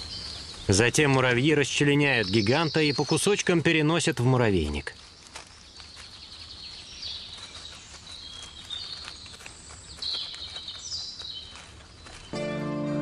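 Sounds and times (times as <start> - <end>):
faint clicks and rustling: 0.0 - 12.3
small bird chirping: 0.0 - 12.4.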